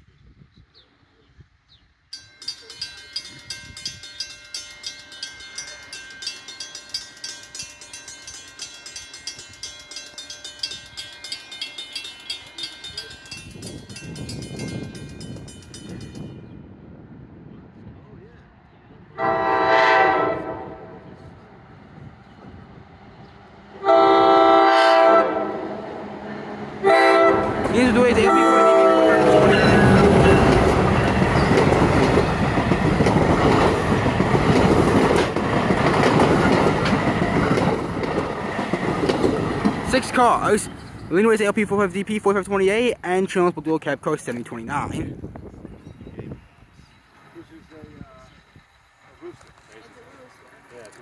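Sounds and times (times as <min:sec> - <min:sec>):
crossing bell ringing: 0:02.1 - 0:16.5, 0:26.8 - 0:45.1, 0:45.7 - 0:50.8
train rumbling: 0:02.2 - 0:51.0
train horn blasts: 0:19.2 - 0:21.2, 0:23.8 - 0:31.1.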